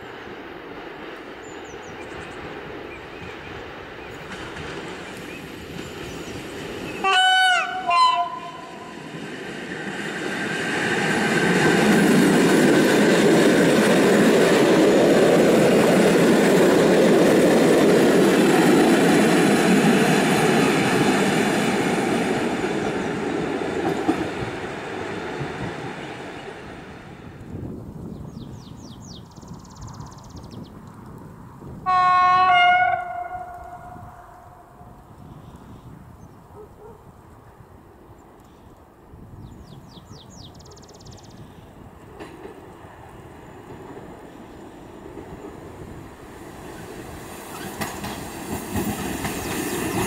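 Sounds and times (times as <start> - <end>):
train wheels on rails: 0.0 - 35.8, 40.3 - 50.0
train horn two notes: 7.0 - 8.9, 31.8 - 34.6.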